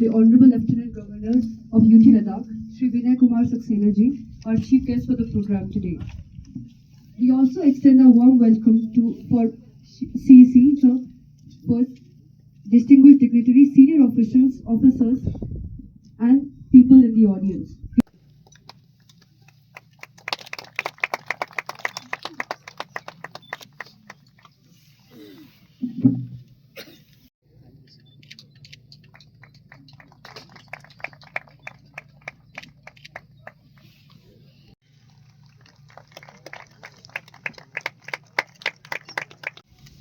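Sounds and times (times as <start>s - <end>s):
sparse applause: 19.7s - 24.2s, 29.4s - 33.3s, 35.0s - 39.6s.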